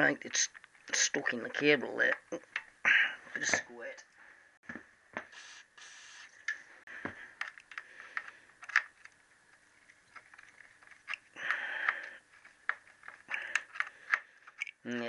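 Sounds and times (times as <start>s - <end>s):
aerosol spray hissing: 5.2s - 6.4s.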